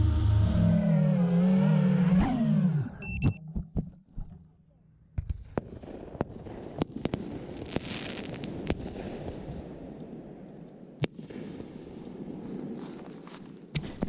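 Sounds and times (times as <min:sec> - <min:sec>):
fireworks banging: 0:05.1 - 0:14.0.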